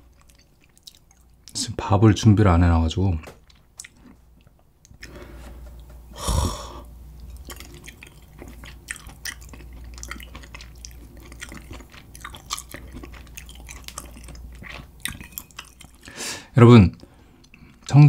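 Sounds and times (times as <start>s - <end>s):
close chewing: 0.0s - 1.6s, 7.2s - 16.2s
person sighing: 6.1s - 6.9s.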